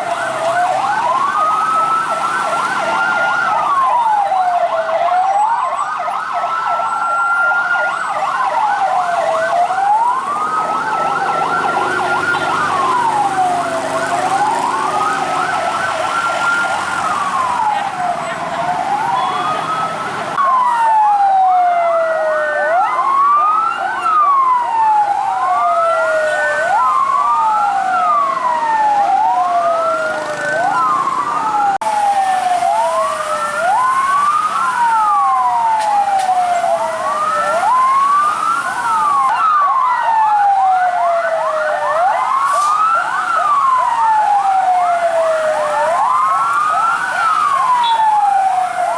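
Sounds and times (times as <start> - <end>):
fire truck sirens wailing: 0.0 - 48.9.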